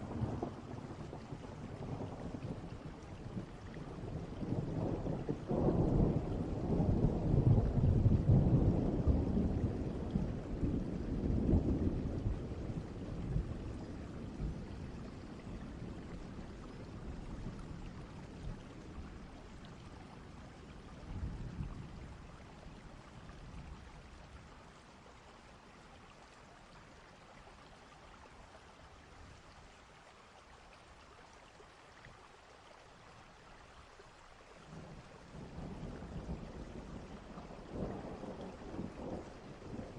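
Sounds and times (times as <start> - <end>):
distant thunder rumbling: 0.0 - 19.5, 34.7 - 39.9
rain hissing: 34.2 - 39.9.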